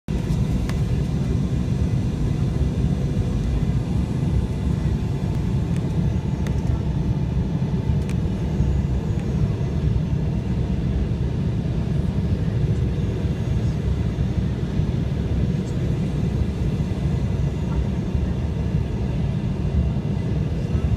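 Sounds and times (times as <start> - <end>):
airliner engine and airflow rumble: 0.1 - 20.9
faint constant hum: 0.1 - 20.9.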